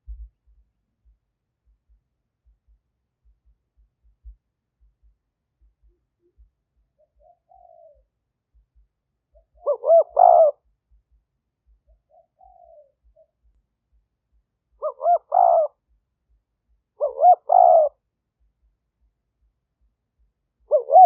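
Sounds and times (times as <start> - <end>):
dove cooing: 6.2 - 8.1, 9.3 - 10.7, 11.9 - 13.4, 14.8 - 15.8, 17.0 - 18.0, 20.6 - 21.0.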